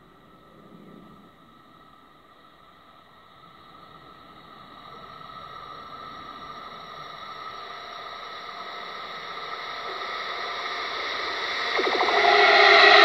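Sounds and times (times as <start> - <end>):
electric train approaching: 0.0 - 13.0
steady whine: 0.0 - 13.0
low tone: 8.2 - 13.0.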